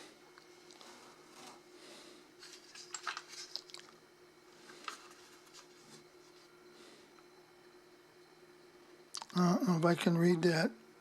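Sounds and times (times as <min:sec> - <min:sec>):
faint steady hum: 0:00.0 - 0:11.0
rustling and small clicks: 0:02.4 - 0:04.0.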